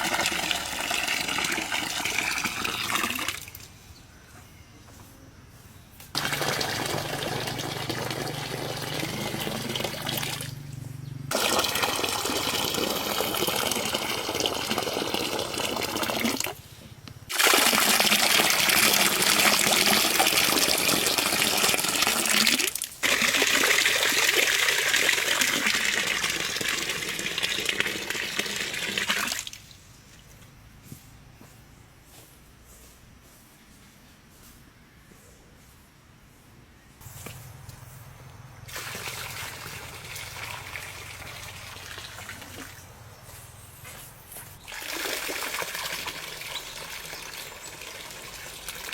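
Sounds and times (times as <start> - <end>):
water pouring and gushing: 0.0 - 3.7, 6.2 - 10.6, 11.3 - 16.6, 17.3 - 29.7, 38.7 - 42.9, 44.6 - 48.9.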